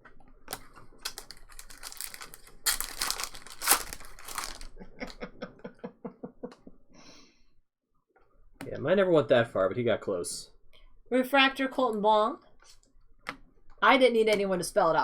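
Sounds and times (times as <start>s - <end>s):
cards clicking: 0.5s - 4.7s
foil pack tearing and crinkling: 0.5s - 4.7s.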